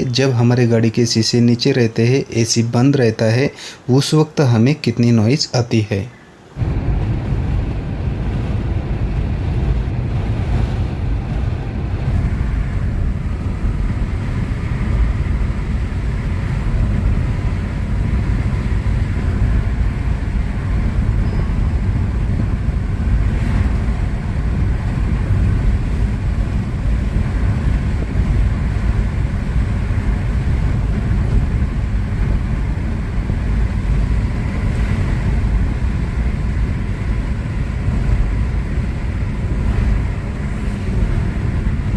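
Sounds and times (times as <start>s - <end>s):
wind rushing through car windows: 6.4s - 41.9s
tyre and road noise: 6.6s - 41.9s.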